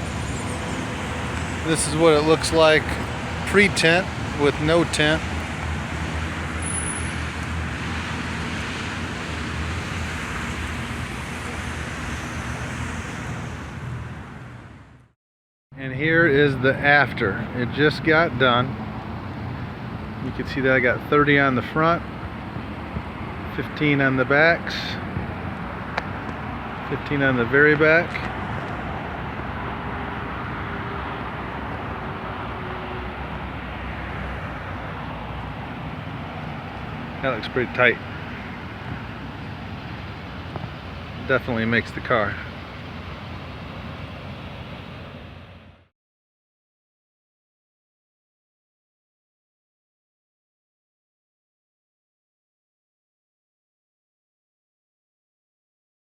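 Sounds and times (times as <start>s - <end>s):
low steady engine hum: 0.0s - 15.1s
rushing outdoor background noise: 0.0s - 15.2s, 15.8s - 45.9s
road traffic noise: 0.0s - 45.9s.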